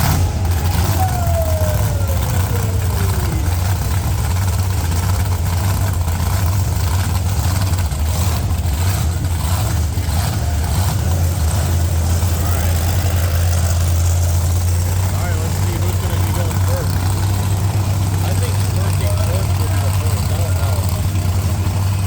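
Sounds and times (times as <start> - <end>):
short falling whine: 0.0 - 5.4
truck engine idling rumble: 0.0 - 22.0.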